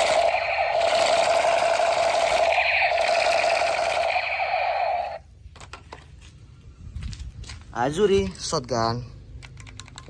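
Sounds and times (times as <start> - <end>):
toy gun fast-pulsing buzz: 0.0 - 5.2.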